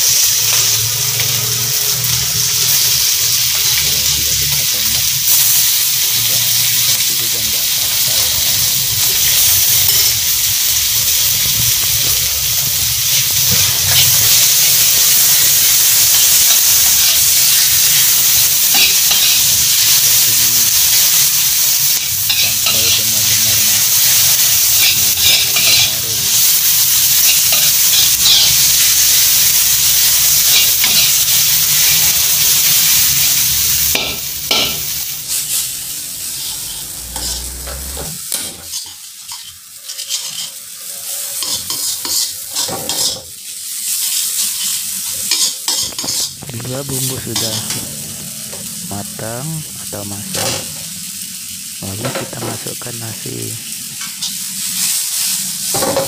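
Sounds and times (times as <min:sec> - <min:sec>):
paste sizzling in a wok: 0:00.0 - 0:56.0
metal spatula scraping a wok: 0:16.2 - 0:20.2, 0:20.9 - 0:26.5, 0:27.2 - 0:29.1, 0:33.9 - 0:46.4, 0:47.4 - 0:48.6.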